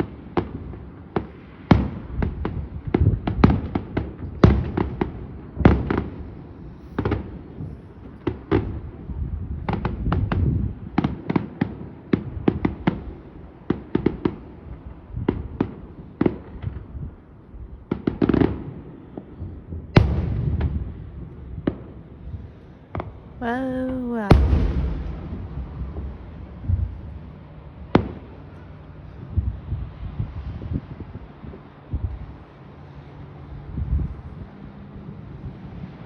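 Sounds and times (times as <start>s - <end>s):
fireworks bangs and crackles: 0.0s - 6.4s, 7.0s - 17.0s, 17.9s - 22.0s, 23.4s - 28.4s.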